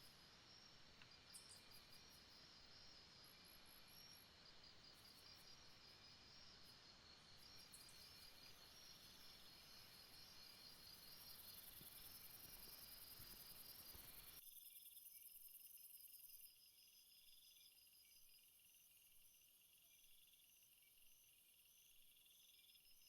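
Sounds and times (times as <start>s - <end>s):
soft background hiss: 0.0s - 14.4s
crickets chirping: 0.0s - 23.0s.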